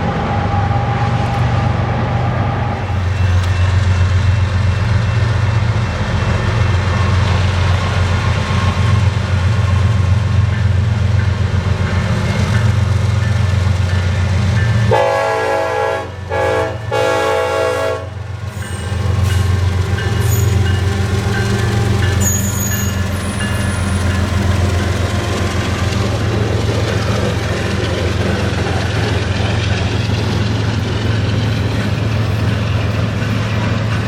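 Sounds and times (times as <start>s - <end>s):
diesel locomotive rumbling: 0.0s - 34.0s
multi-tone train horn: 14.8s - 26.4s.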